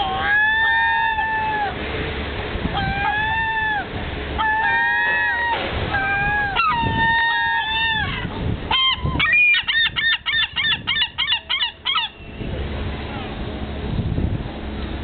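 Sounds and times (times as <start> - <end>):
large birds calling loudly: 0.0 - 1.8, 2.7 - 12.3.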